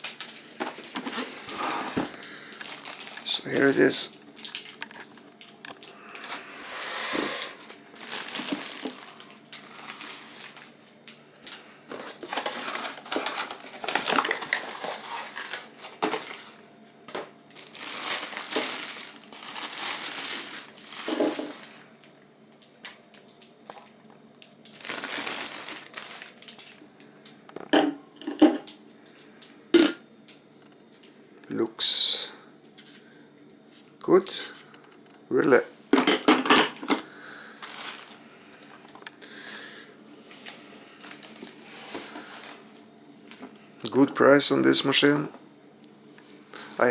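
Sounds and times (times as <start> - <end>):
plastic packaging crinkling: 0.0 - 27.4, 36.7 - 39.4, 40.3 - 44.0.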